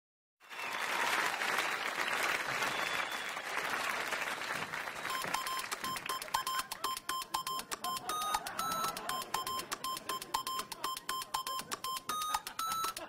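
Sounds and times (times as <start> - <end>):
hands clapping: 0.5 - 13.0
short electronic beeps: 5.1 - 13.0.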